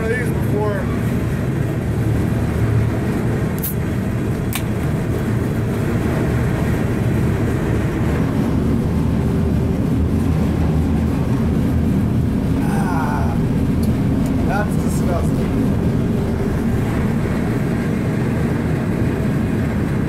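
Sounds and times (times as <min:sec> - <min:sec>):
freight train rumbling: 0:00.0 - 0:20.0
sharp clicks: 0:04.5 - 0:04.7.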